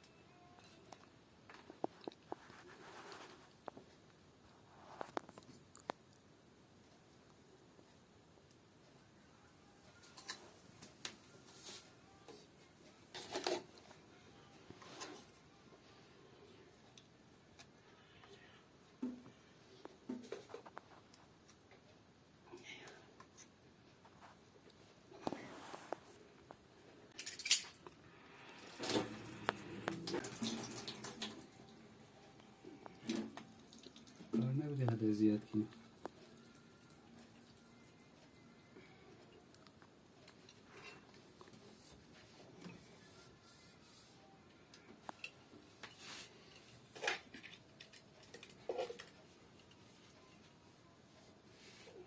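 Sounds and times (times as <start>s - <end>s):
water running from tap: 29.9s - 31.4s.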